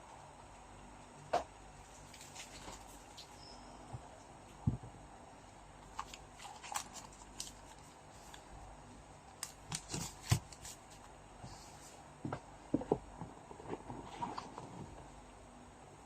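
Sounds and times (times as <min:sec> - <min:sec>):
cards and packaging rustling: 0:01.9 - 0:03.4, 0:05.9 - 0:08.5, 0:09.4 - 0:11.1.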